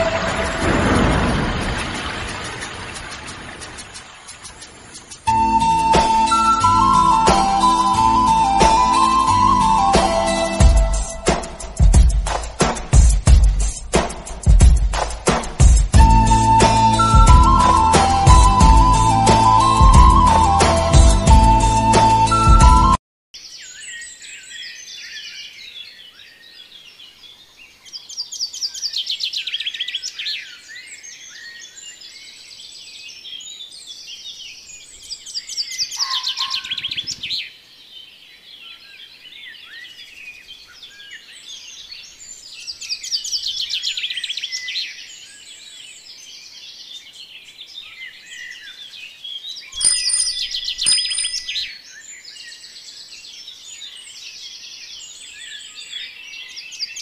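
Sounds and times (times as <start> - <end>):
small birds chirping: 2.1 - 5.3, 23.4 - 57.0
bird rapid trilling: 35.7 - 37.3, 49.7 - 51.7.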